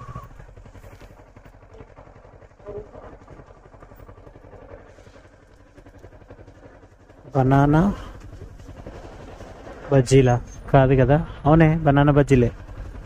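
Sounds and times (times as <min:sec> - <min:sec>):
motorcycle engine rumbling: 0:00.0 - 0:13.0.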